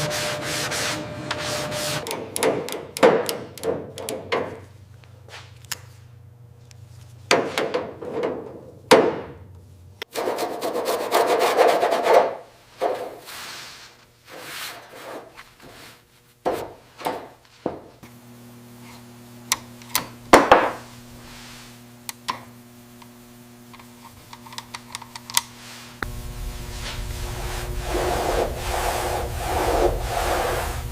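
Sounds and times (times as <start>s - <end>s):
hand scraping and rubbing: 0.0s - 2.0s, 12.8s - 16.4s, 25.6s - 30.9s
steady low hum: 3.5s - 10.1s, 18.0s - 30.9s.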